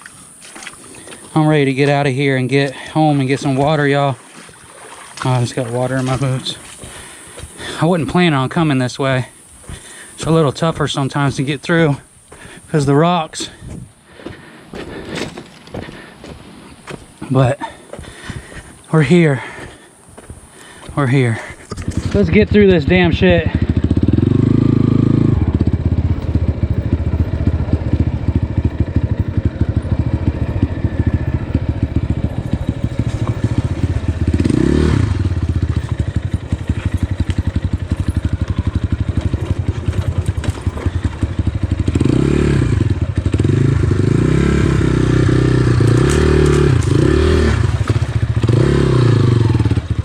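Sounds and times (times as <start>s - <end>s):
knocks and scrapes against rocks: 0.0s - 7.6s, 13.4s - 18.8s, 19.5s - 22.4s, 32.4s - 38.4s, 39.0s - 41.4s, 45.7s - 48.6s
dirt bike engine running: 0.0s - 12.6s, 13.4s - 50.0s.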